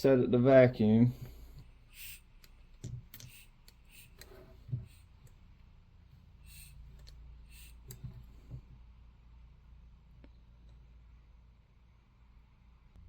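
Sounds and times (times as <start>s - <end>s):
hand vacuum pump clicks and puffs: 1.2s - 5.4s, 6.4s - 8.7s.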